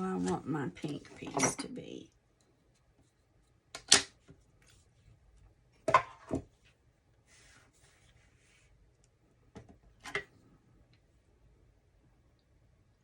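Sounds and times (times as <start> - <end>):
paper sliding rustle: 7.2 - 8.7.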